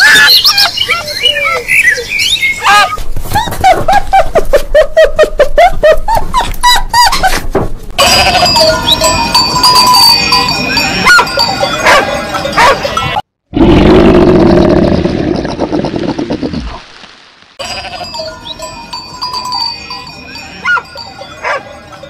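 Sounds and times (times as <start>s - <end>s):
sheep bleating: 8.0s - 8.9s, 17.6s - 18.2s
dog barking: 11.0s - 12.9s, 20.6s - 21.6s.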